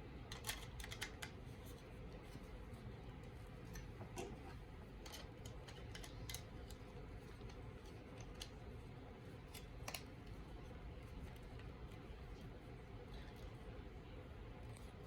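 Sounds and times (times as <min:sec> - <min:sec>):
faint steady hum: 0:00.0 - 0:15.0
plastic parts clicking together: 0:00.3 - 0:01.4.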